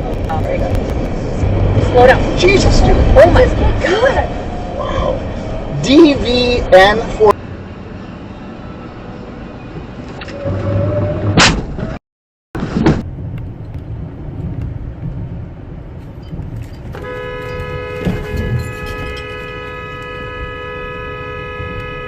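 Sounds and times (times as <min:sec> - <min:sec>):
car road and engine noise: 0:00.0 - 0:12.0, 0:12.6 - 0:22.0
car horn: 0:16.9 - 0:22.0.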